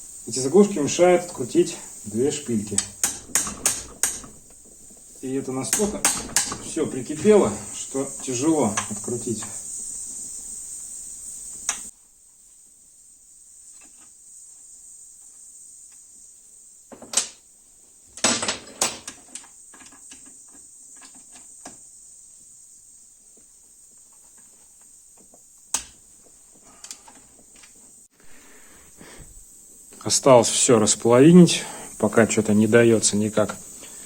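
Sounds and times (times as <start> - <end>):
hand tools clicking on metal: 1.2 - 9.6.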